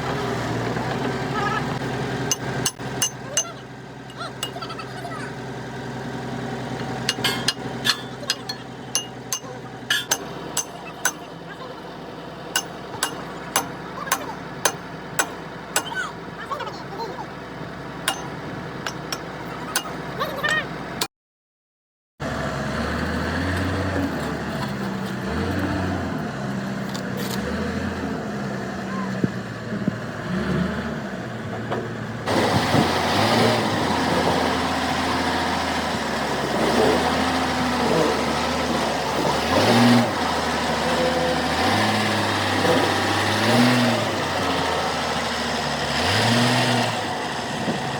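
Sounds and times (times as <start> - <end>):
large engine revving: 22.2 - 31.5, 32.2 - 47.9.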